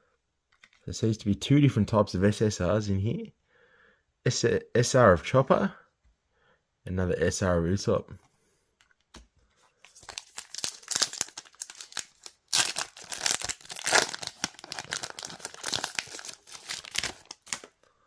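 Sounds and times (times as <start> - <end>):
foil wrapper tearing and crinkling: 9.9 - 17.8.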